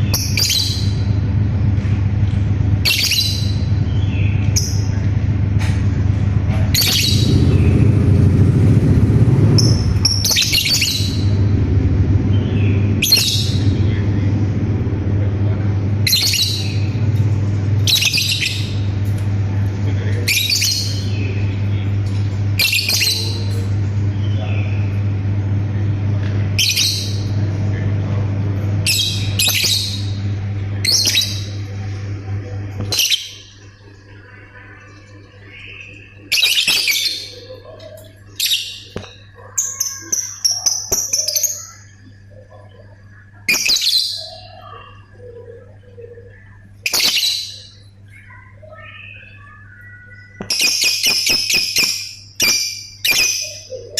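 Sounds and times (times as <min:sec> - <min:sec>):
steady low hum: 0:00.0 - 0:53.9
bird chattering calls: 0:02.6 - 0:19.0, 0:32.8 - 0:53.9.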